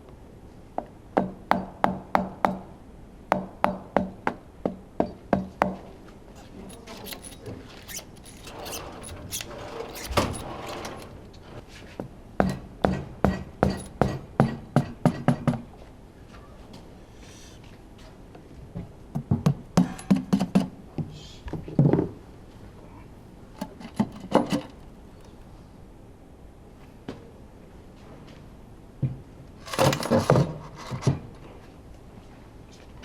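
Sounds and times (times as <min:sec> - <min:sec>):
parts clattering and scraping: 0:06.4 - 0:12.0, 0:13.6 - 0:14.2, 0:23.6 - 0:25.5, 0:29.6 - 0:31.6
hammer tapping on metal: 0:12.4 - 0:15.6.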